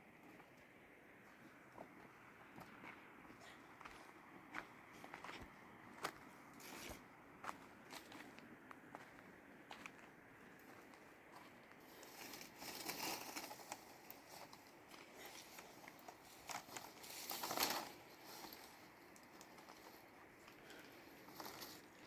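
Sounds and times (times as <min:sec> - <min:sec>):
rustling crinkling handling noises: 0:11.8 - 0:22.0.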